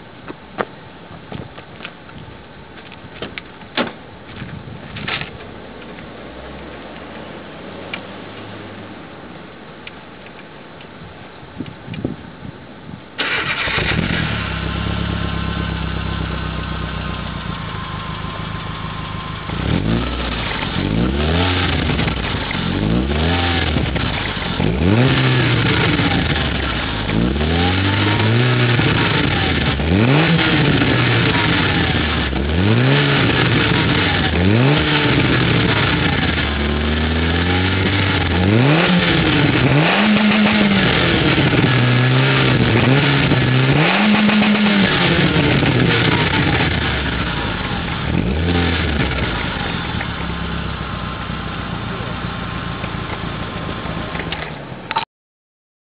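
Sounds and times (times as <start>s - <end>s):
car engine starting and revving: 13.2s - 54.8s.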